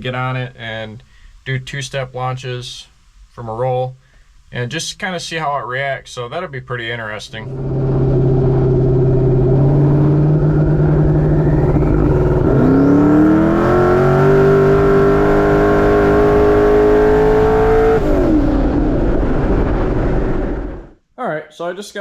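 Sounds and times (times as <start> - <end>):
pickup engine accelerating hard: 7.4 - 20.8.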